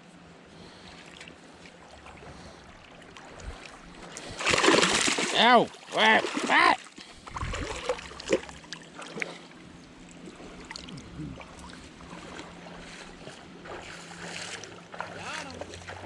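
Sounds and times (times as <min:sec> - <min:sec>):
river water lapping: 0:00.1 - 0:16.0
wind rumble on microphone: 0:07.2 - 0:08.0.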